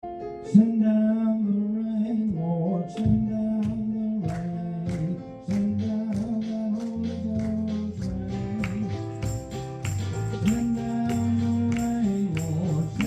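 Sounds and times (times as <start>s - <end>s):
bass line: 2.1s - 13.0s
sharp percussion hits: 6.1s - 13.0s.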